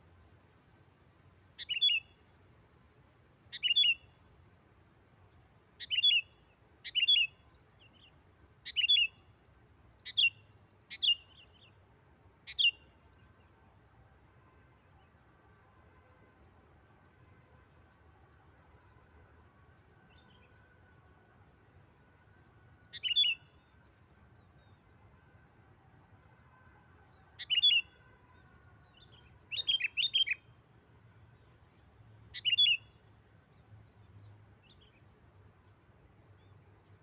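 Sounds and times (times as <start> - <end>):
faint bird calls: 1.5 - 2.4, 3.5 - 4.2, 5.8 - 9.4, 22.5 - 24.8, 31.5 - 33.4
bird singing bubbly phrases: 29.5 - 30.5, 32.4 - 32.9.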